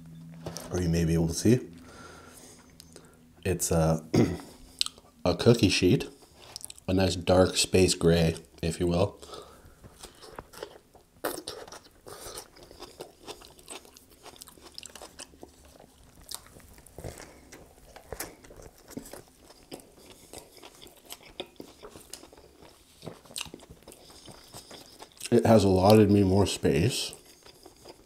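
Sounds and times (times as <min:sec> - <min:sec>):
person chewing food: 0:04.4 - 0:05.2, 0:06.2 - 0:06.9, 0:09.2 - 0:26.0, 0:27.0 - 0:28.0
biting into burger: 0:09.9 - 0:25.4.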